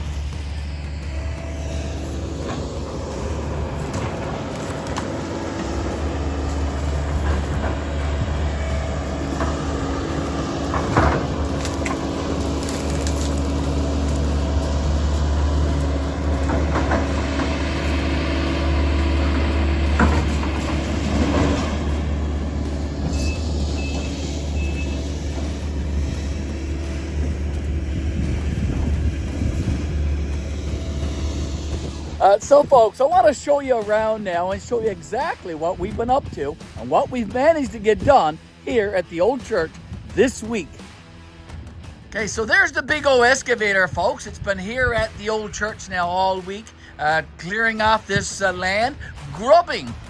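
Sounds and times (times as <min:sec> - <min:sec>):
heavy engine droning: 0:00.0 - 0:50.0
knocks and clunks: 0:02.1 - 0:32.2.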